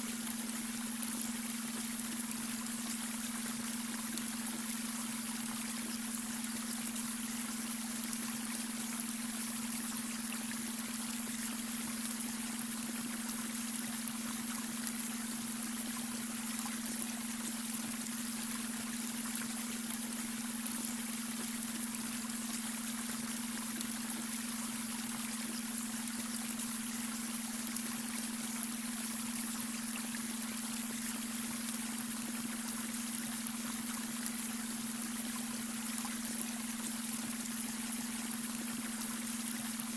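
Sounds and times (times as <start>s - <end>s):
running water trickling: 0.0s - 39.9s.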